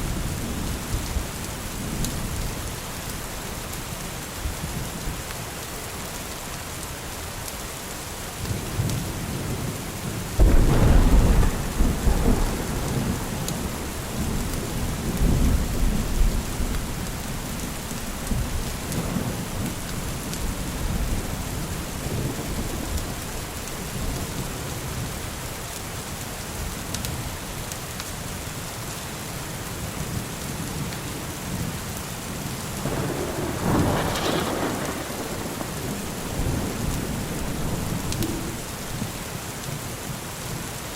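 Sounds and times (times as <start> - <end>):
steady rain: 0.0 - 40.9
thunder rumbling: 10.4 - 24.5, 32.8 - 39.3.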